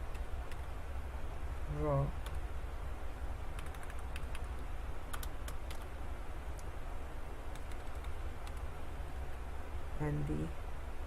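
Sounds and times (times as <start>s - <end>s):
steady low hum: 0.0s - 11.0s
keyboard keys pressed: 3.6s - 5.9s.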